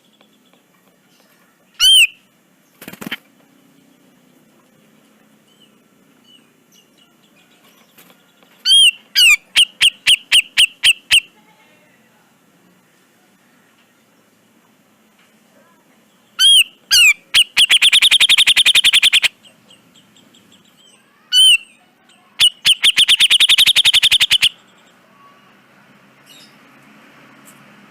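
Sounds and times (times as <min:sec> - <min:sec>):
bird calling: 0:01.8 - 0:02.2, 0:08.6 - 0:11.3, 0:16.4 - 0:24.6.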